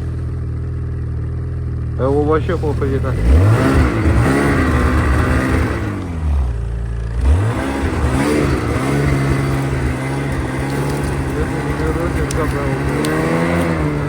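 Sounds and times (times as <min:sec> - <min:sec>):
snowmobile engine revving: 0:00.0 - 0:14.0.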